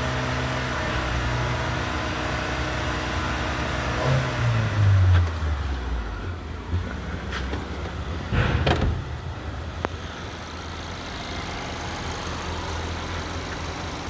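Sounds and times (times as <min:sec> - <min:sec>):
vehicle engine idling: 0:05.3 - 0:14.0.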